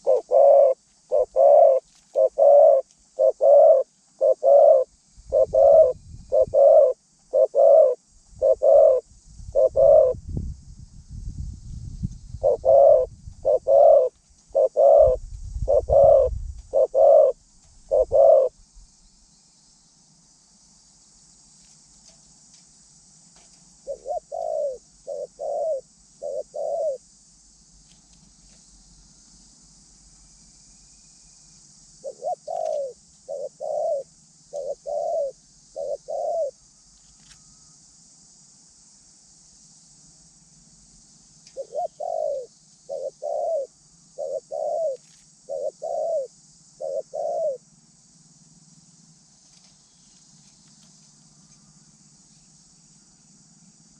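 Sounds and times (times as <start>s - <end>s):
dove cooing: 0.0s - 10.2s, 12.4s - 18.6s, 23.8s - 27.0s, 32.0s - 36.6s, 41.5s - 47.6s.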